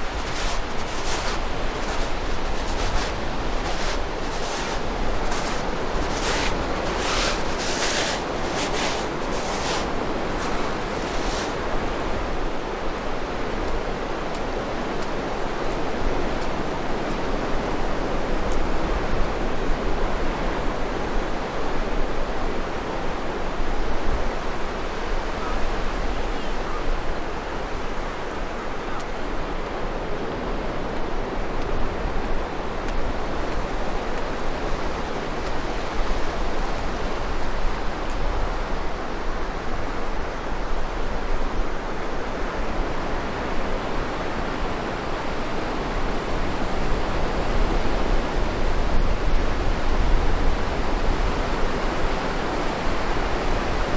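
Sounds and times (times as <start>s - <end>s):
waves rushing: 0.0s - 14.1s
wind rumbling on microphone: 0.0s - 53.9s.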